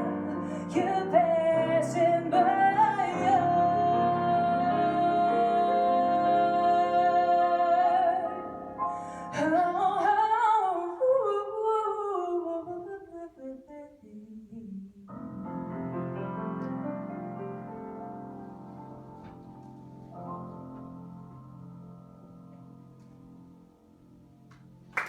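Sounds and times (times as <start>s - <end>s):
woman singing with vibrato: 0.0s - 8.4s, 9.2s - 15.2s
grand piano: 0.0s - 13.4s, 14.8s - 25.0s.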